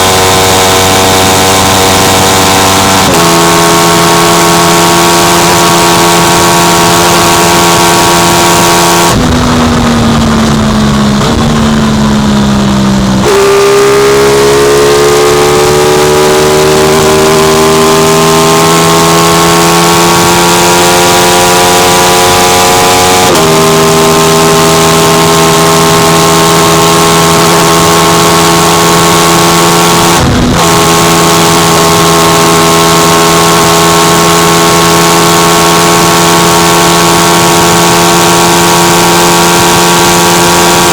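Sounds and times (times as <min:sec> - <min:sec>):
motorcycle engine at high revs: 0:00.0 - 0:40.9
wind rush: 0:08.8 - 0:12.9.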